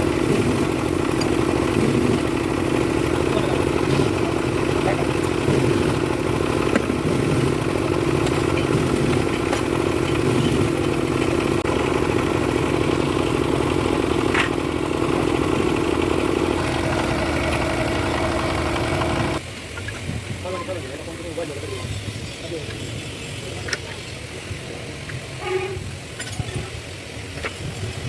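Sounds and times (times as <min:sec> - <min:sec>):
engine running steadily: 0:00.0 - 0:21.9.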